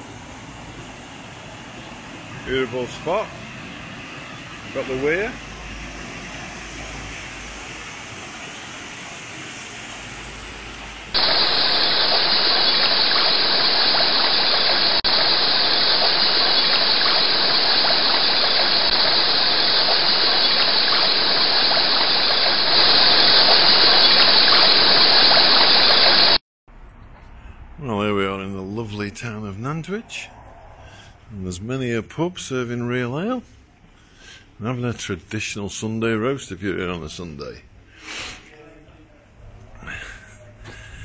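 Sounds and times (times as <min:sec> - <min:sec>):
water rushing over weir: 0:04.6 - 0:26.4.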